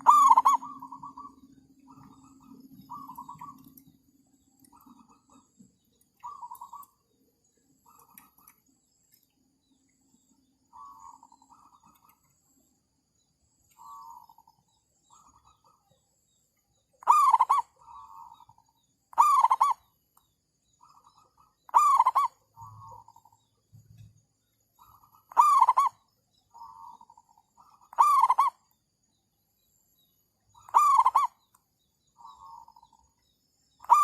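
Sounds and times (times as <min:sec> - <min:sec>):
soft trilling coos: 0:00.0 - 0:03.7, 0:27.9 - 0:28.6, 0:30.7 - 0:31.4
doves cooing: 0:00.0 - 0:04.0, 0:17.0 - 0:18.5, 0:19.2 - 0:19.8, 0:21.1 - 0:23.2, 0:25.2 - 0:26.0, 0:26.6 - 0:28.6, 0:30.6 - 0:31.4.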